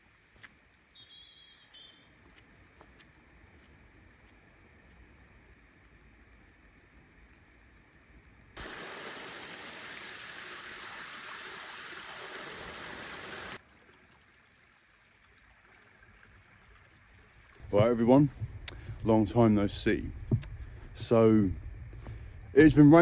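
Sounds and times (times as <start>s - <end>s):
running water rushing: 8.6s - 23.0s.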